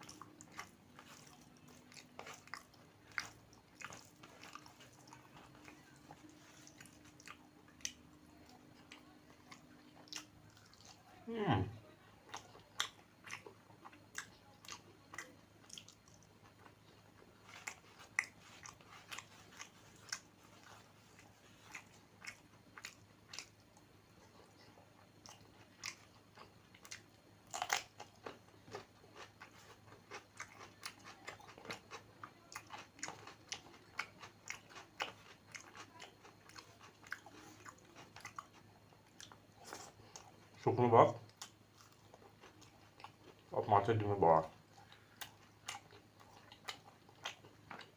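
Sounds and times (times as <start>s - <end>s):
person chewing food: 0.0s - 11.1s, 12.2s - 40.7s, 41.3s - 43.6s, 44.4s - 47.9s
crunching bites: 26.8s - 32.0s.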